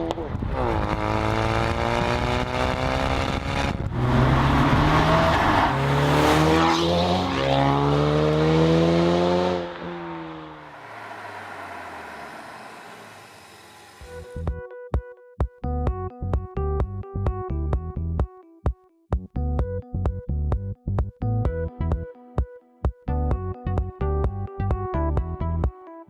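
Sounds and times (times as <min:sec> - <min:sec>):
car engine accelerating: 0:00.0 - 0:14.6
music: 0:14.1 - 0:26.0.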